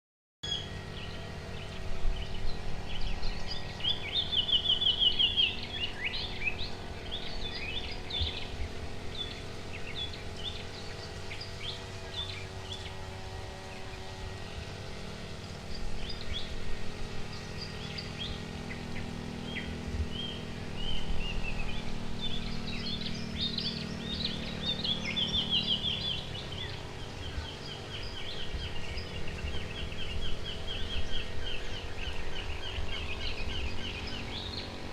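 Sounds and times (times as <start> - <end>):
birds chirping and trilling: 0.4 - 34.9
low steady hum: 0.4 - 34.9.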